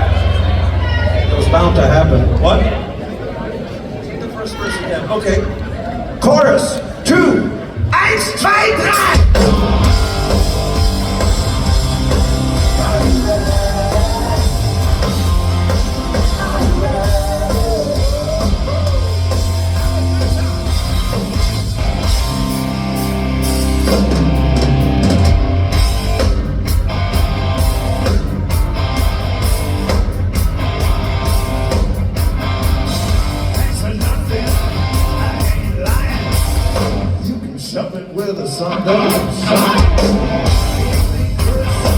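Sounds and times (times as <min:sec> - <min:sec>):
bass guitar: 0:00.0 - 0:02.9, 0:09.2 - 0:37.3, 0:38.9 - 0:41.9
drum kit: 0:08.9 - 0:37.3, 0:39.0 - 0:41.9
distorted electric guitar: 0:09.0 - 0:37.3, 0:38.7 - 0:41.9.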